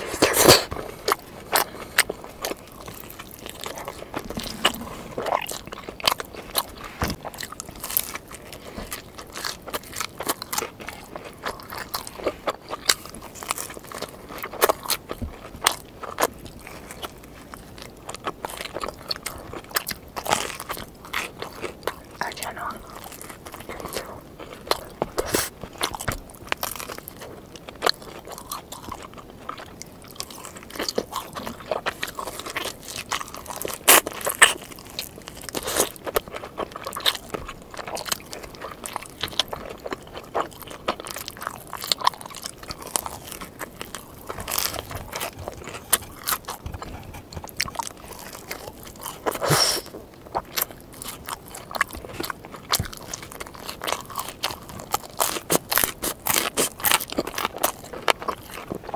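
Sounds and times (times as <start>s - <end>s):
chewing crunchy pizza: 0.0s - 58.9s
wet mouth sounds: 3.6s - 6.2s, 42.7s - 50.0s.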